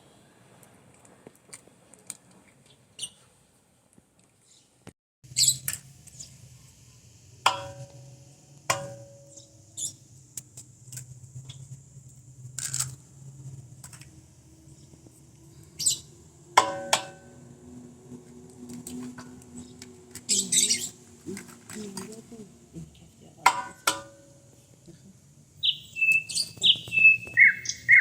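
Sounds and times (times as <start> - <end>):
low steady hum: 6.0 - 25.6
cookware knocking and scraping: 7.5 - 8.0, 23.5 - 24.3
ringing knocks on cookware: 7.5 - 8.1, 8.7 - 9.3, 16.6 - 17.3, 23.5 - 24.3.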